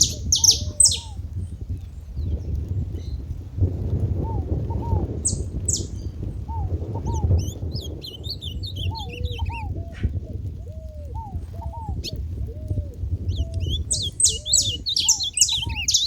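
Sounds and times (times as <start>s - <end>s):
finches calling: 0.0s - 1.2s, 5.2s - 10.0s, 13.3s - 16.0s.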